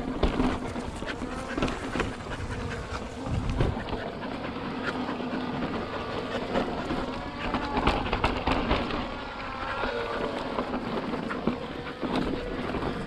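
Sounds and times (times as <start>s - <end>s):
bike rattling and knocking: 0.0s - 4.0s.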